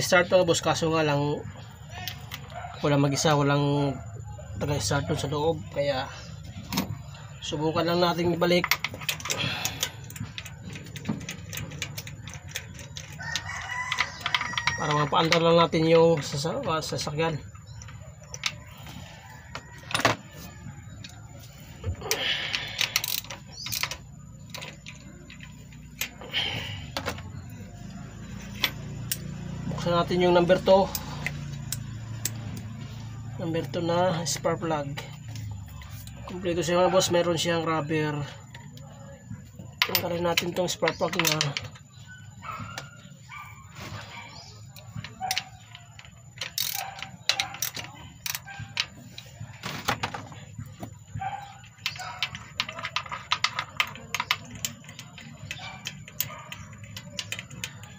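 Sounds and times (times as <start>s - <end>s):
tools clicking and knocking on metal: 6.6s - 43.2s, 43.9s - 57.9s
socket wrench clicking: 45.2s - 48.9s
ratchet ticking: 46.5s - 46.9s.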